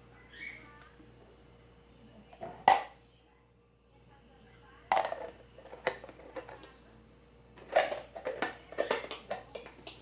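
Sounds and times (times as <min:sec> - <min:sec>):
food container lids clicking: 0:07.6 - 0:10.0.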